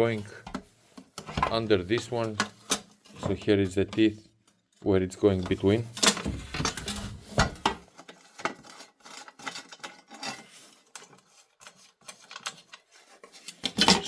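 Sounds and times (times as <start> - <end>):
metal plates clinking and scraping: 13.4 - 14.0.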